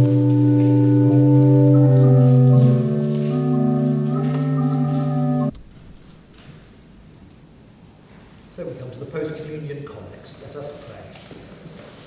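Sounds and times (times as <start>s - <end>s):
organ chords: 0.0s - 6.1s.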